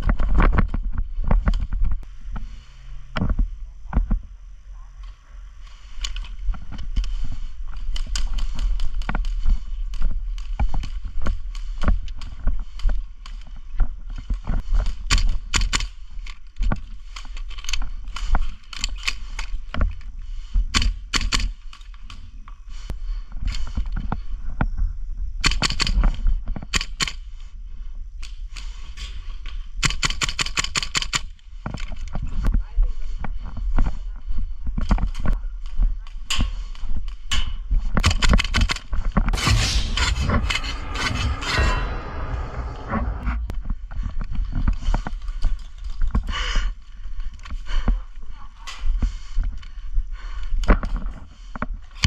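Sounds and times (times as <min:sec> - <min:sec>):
low rumble on microphone: 0:39.3 - 0:44.5.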